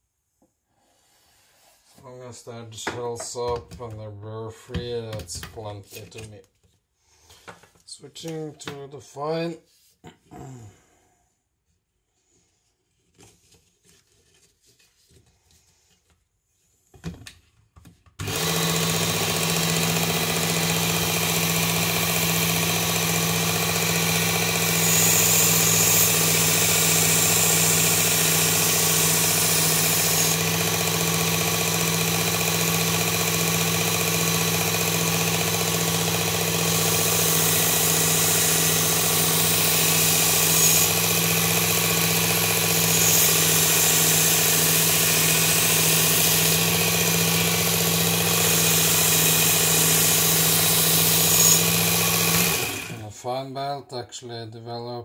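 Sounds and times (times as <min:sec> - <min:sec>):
belt grinder motor hum: 0:18.2 - 0:53.1.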